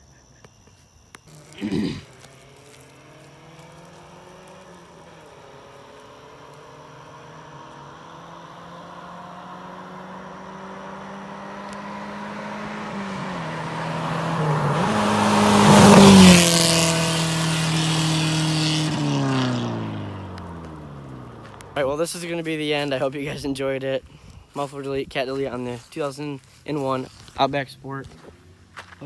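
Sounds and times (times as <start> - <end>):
loud car engine accelerating past: 1.3 - 21.9.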